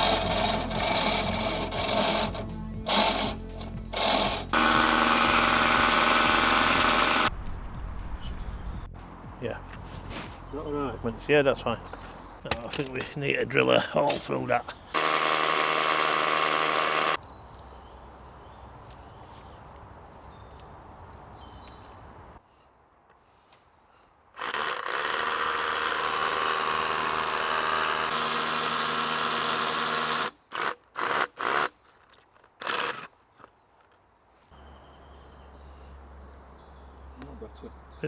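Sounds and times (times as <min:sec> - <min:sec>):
power drill drilling: 0:00.0 - 0:07.3, 0:15.0 - 0:17.2, 0:24.4 - 0:31.7, 0:32.6 - 0:33.1.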